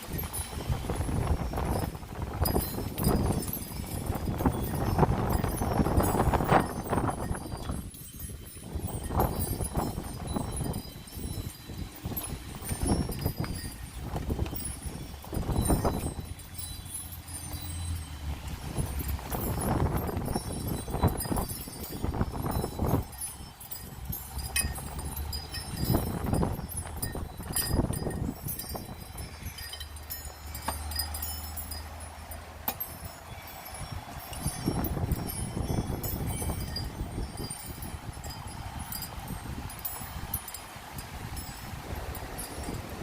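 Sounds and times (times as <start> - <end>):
wind buffeting microphone: 0.0 - 43.0
wind chimes tinkling: 0.0 - 43.0.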